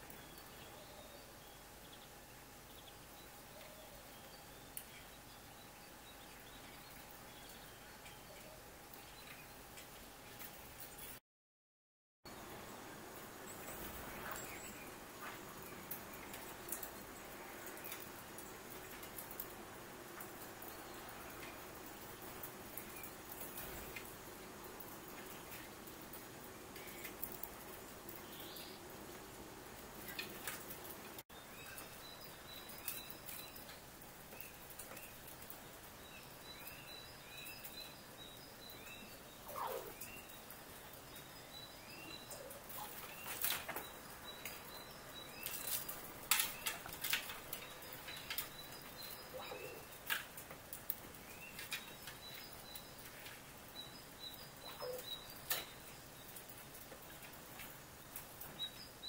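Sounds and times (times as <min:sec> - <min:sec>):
small birds chirping: 0:00.0 - 0:11.2, 0:12.3 - 0:59.0
lower descending bird calls: 0:36.2 - 0:40.5, 0:47.6 - 0:50.0, 0:53.8 - 0:55.8.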